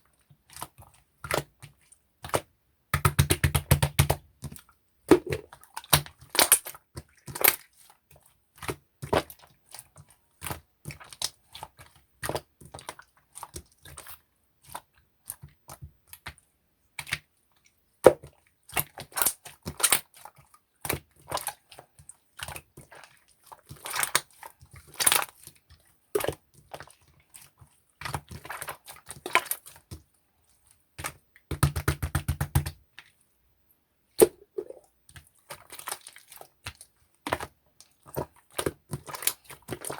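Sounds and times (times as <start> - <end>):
slime squished by hand: 2.2 - 7.7, 34.2 - 39.9.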